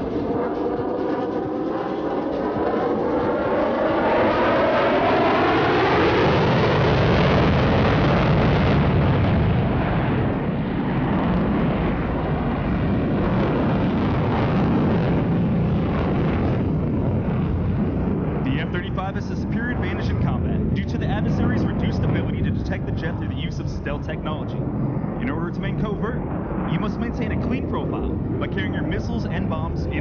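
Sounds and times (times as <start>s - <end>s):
loud jet engine roar: 0.0s - 30.0s.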